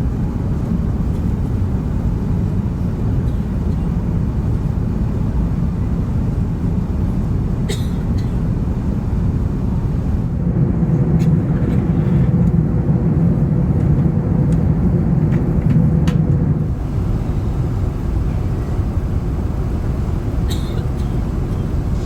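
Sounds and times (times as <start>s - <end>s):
airplane cabin rumble: 0.0s - 22.0s.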